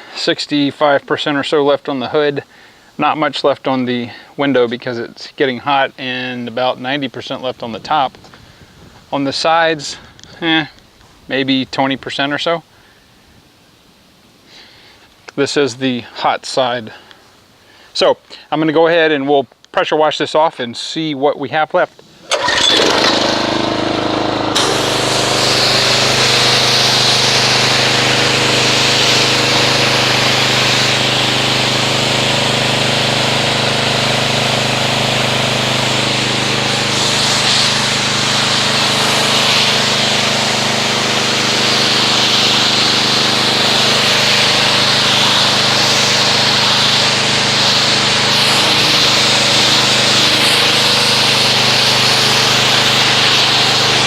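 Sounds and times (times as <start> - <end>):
pressure washer engine running: 22.2 - 54.0
high-pressure water spray hissing: 22.3 - 54.0.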